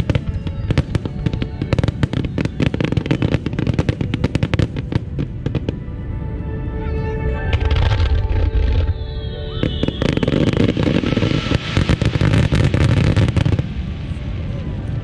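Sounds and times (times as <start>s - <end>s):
fireworks bangs and crackles: 0.0s - 5.8s, 7.5s - 15.0s
steady music: 0.1s - 11.9s.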